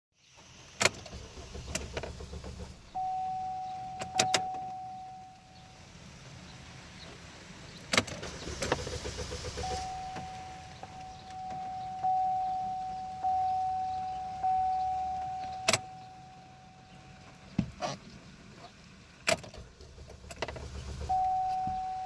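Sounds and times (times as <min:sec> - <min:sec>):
electronic warning tone: 0:03.0 - 0:05.6, 0:09.6 - 0:17.2, 0:21.1 - 0:22.0
key and switch clicks: 0:04.0 - 0:04.8, 0:15.2 - 0:16.0
low hum: 0:19.6 - 0:22.0.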